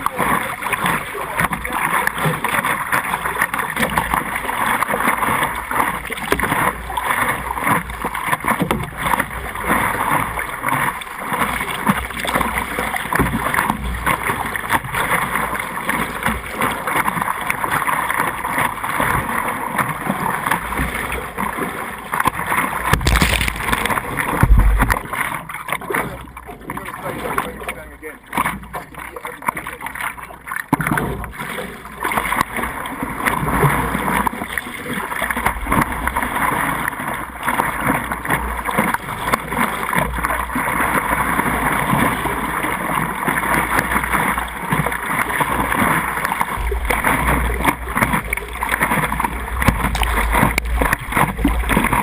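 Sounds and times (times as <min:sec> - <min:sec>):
low thumps: 0:23.0 - 0:25.1.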